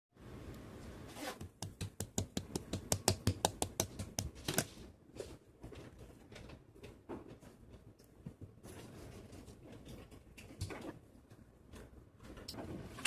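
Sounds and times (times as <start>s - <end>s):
sharp clicks and taps: 1.4s - 4.4s.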